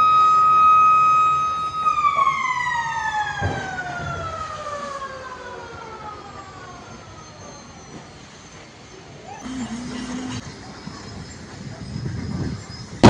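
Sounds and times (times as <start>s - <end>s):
siren winding down: 9.4s - 10.6s.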